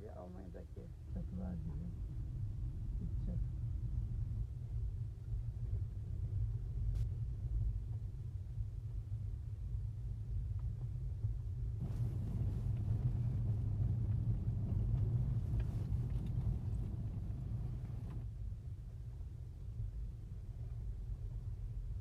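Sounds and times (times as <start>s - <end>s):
car engine and road noise: 9.2s - 22.0s.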